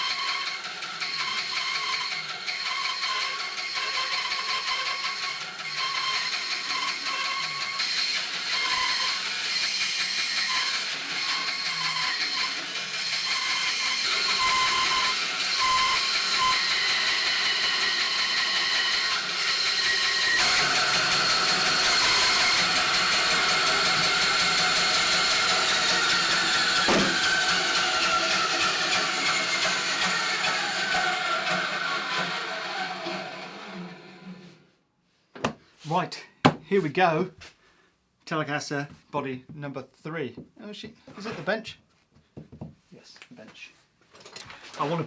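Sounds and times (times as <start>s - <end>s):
power saw cutting wood: 0.0s - 34.6s.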